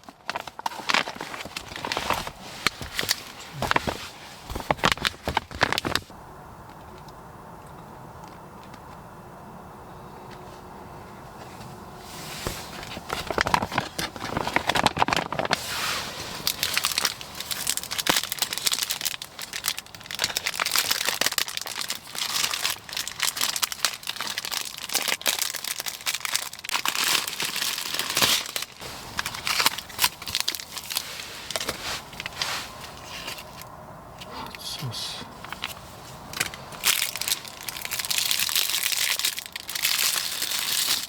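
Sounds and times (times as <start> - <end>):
plastic packaging crinkling: 0.0 - 6.1, 12.7 - 33.7, 36.4 - 41.0.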